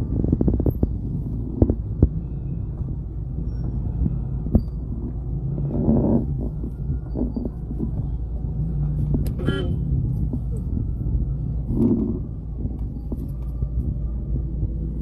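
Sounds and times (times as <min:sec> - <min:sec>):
car engine rumble: 0:00.0 - 0:15.0
car horn toot: 0:09.3 - 0:09.9.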